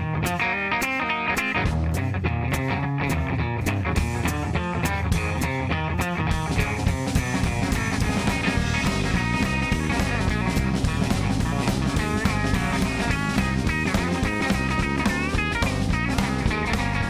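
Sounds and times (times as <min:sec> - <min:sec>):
blues band playing: 0:00.0 - 0:17.0
lead guitar with bent notes: 0:00.0 - 0:17.0.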